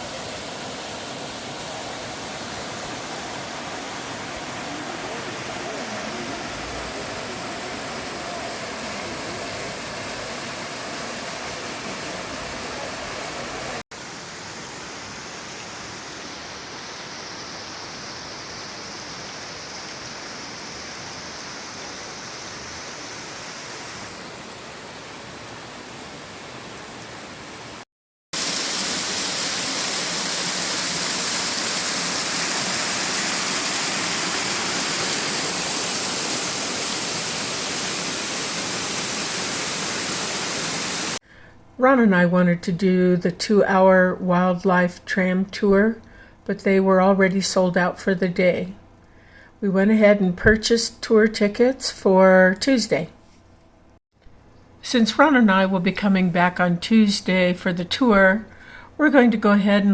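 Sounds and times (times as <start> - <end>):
water flowing in a creek: 0.0 - 27.8, 28.4 - 41.2.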